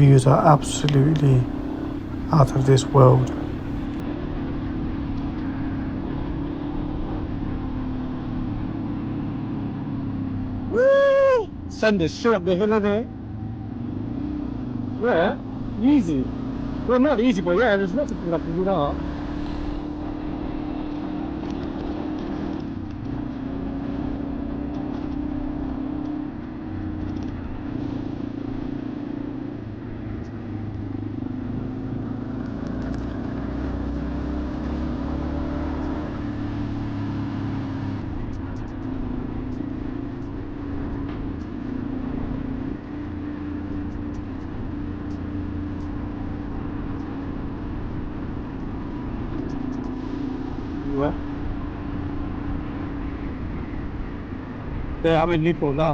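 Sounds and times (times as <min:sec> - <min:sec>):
motorcycle engine droning: 0:00.0 - 0:09.3
road and wind noise: 0:00.0 - 0:55.9.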